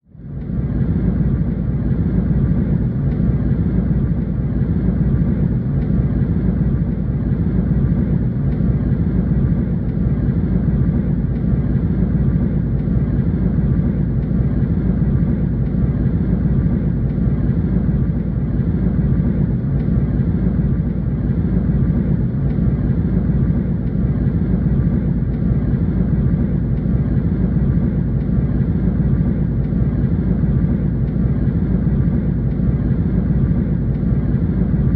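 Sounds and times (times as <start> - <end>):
jet engine and airflow rumble: 0.0 - 34.9.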